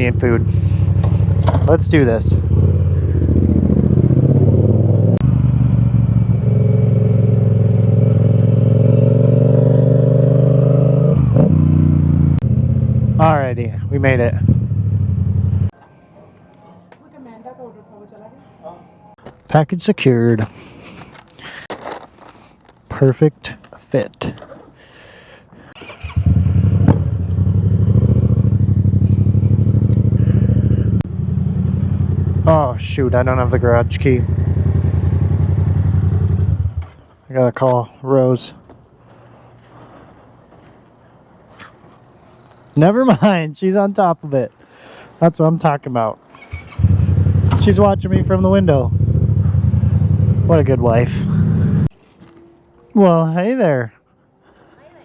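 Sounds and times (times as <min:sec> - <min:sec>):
motorcycle engine running: 0:00.0 - 0:15.7, 0:26.0 - 0:37.0, 0:46.5 - 0:51.9.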